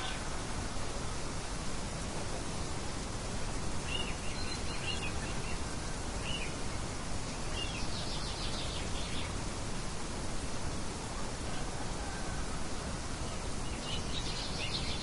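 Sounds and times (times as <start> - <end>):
small birds chirping: 3.4 - 9.5, 13.2 - 15.0.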